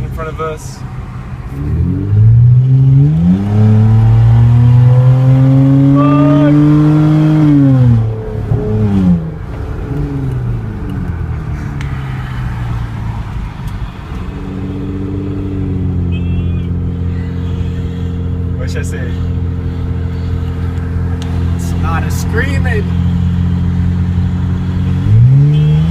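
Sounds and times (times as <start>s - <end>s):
car engine accelerating hard: 1.0s - 25.9s.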